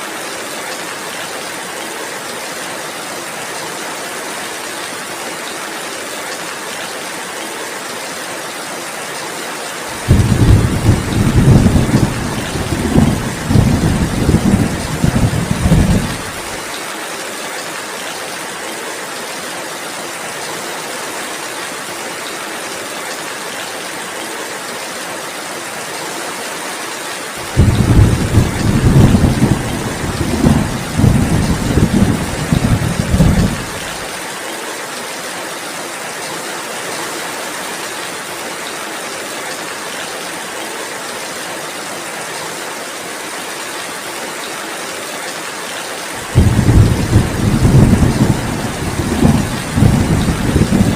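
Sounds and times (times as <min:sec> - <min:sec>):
steady rainfall: 0:00.0 - 0:50.9
thunder rumbling: 0:10.0 - 0:16.6, 0:27.4 - 0:34.1, 0:46.2 - 0:50.9.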